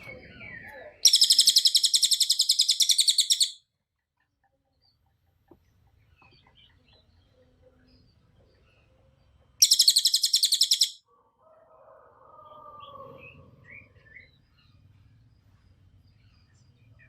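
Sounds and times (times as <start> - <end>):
bird chirping: 0.0 - 11.0, 12.4 - 17.0
rapid high bird trill: 1.0 - 3.6, 9.6 - 11.0.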